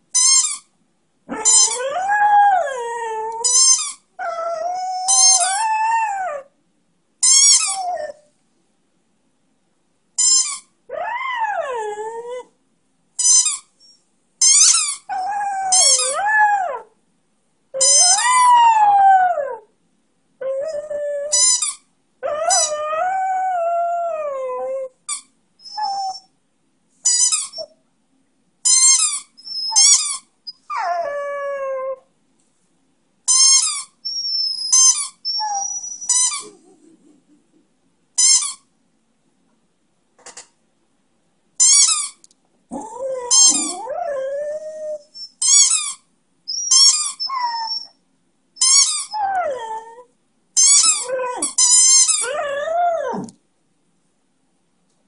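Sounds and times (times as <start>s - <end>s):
squeaky toy squeaks: 0.1s - 0.7s, 1.3s - 2.2s, 3.4s - 5.9s, 7.2s - 8.1s, 10.2s - 10.7s, 13.2s - 16.3s, 17.8s - 18.5s, 21.2s - 22.8s, 27.0s - 27.7s, 28.6s - 31.0s, 33.3s - 36.5s, 38.2s - 38.7s, 41.6s - 42.2s, 42.9s - 44.0s, 45.1s - 48.0s, 48.6s - 49.7s, 50.6s - 52.5s
dog howling: 1.3s - 3.4s, 4.2s - 6.5s, 10.9s - 12.5s, 15.1s - 16.9s, 22.2s - 24.9s, 42.7s - 45.2s, 49.1s - 50.1s, 50.8s - 51.6s, 52.2s - 53.4s.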